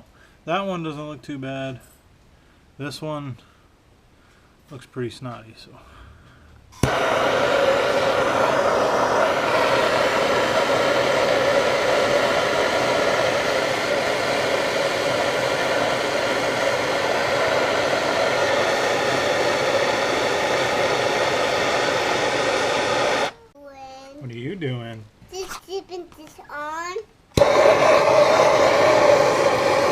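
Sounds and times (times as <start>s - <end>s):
torch lighting pop: 6.8s - 15.8s, 27.3s - 29.9s
gas torch flame roaring: 6.8s - 23.4s, 27.4s - 29.9s.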